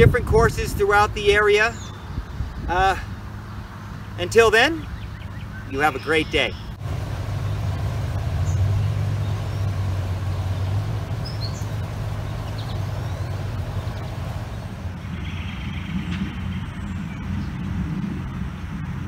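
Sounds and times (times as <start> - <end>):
faint bird chirps: 4.8 - 6.8, 10.5 - 14.2
low rumble: 6.7 - 19.0.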